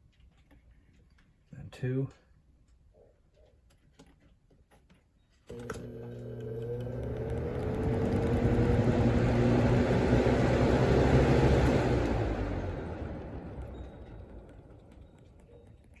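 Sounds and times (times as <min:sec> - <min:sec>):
box fan motor hum and whine: 0:05.5 - 0:15.9.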